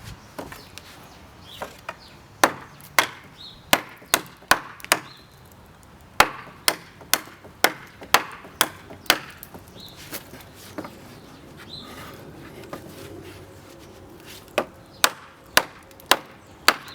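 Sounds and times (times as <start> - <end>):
knife chopping into wood: 1.6 - 5.1, 6.2 - 10.9.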